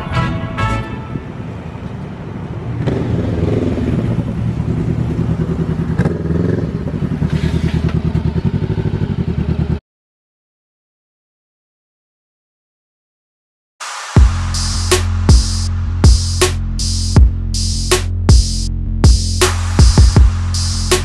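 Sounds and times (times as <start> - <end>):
motorcycle engine running: 2.7 - 9.8.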